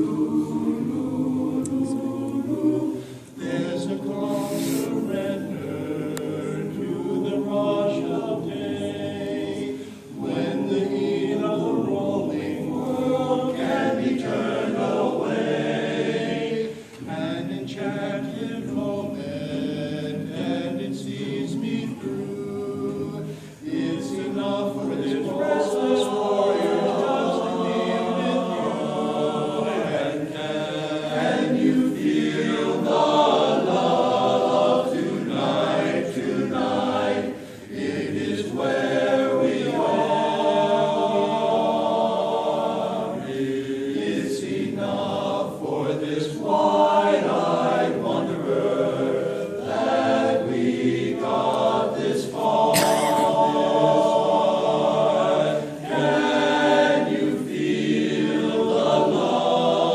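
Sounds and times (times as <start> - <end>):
group of voices singing: 0.0 - 59.9.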